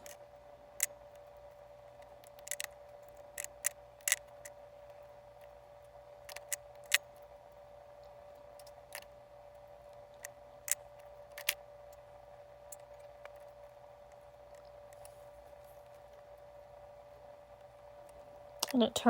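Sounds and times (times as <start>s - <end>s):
faint steady hum: 0.0s - 19.0s
light clicks and snips: 2.0s - 4.6s.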